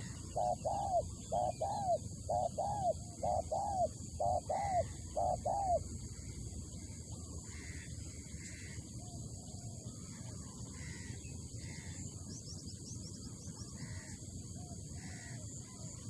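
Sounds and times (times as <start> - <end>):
dove cooing: 0.0 - 6.0
other birds calling: 0.0 - 12.4, 13.3 - 16.0
outdoor background noise: 0.0 - 16.0.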